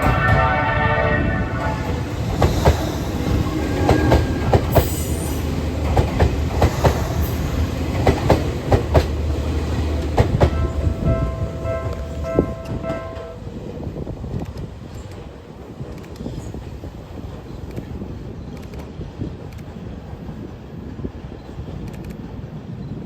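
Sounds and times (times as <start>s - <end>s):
train rolling past rumbling: 0.0s - 23.0s
wheels clacking over rail joints: 1.7s - 13.5s.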